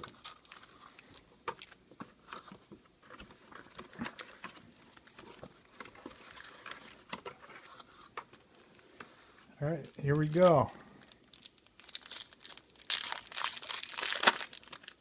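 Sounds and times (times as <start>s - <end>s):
foil packs crinkling: 0.0s - 1.8s, 9.8s - 15.0s
foil packs tapping and clicking: 11.3s - 15.0s.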